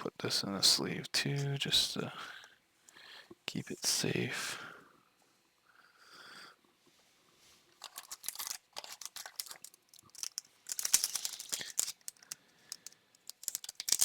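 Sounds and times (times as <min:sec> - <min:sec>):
plastic and foil wrappers crinkling: 0:07.7 - 0:14.0.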